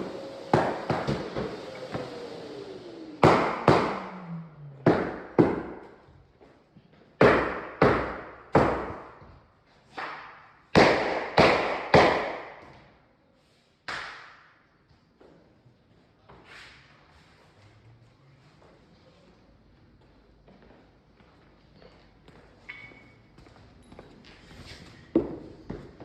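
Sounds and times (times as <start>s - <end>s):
hammer blows on floorboards: 0.1s - 2.2s, 3.2s - 6.2s, 7.0s - 13.0s, 24.6s - 26.0s.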